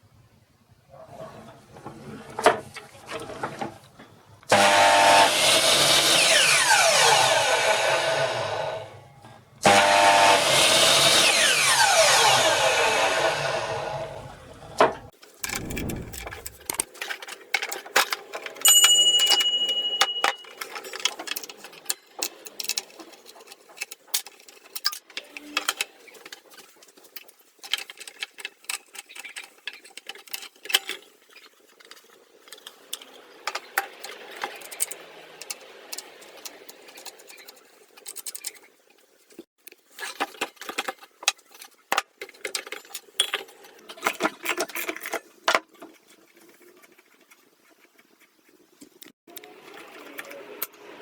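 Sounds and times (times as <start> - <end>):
saw motor coasting down: 4.5 - 9.0, 9.6 - 14.8.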